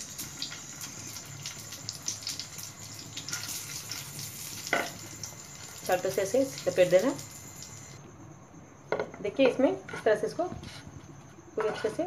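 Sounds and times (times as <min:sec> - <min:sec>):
frying sizzle: 0:00.0 - 0:08.0.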